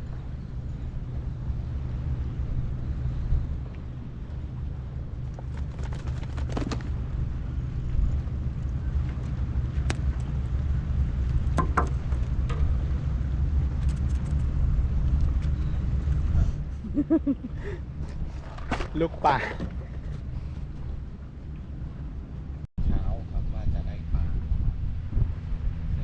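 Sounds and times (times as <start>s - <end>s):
low engine rumble: 0.0s - 26.0s
sharp clicks and knocks: 11.5s - 12.8s.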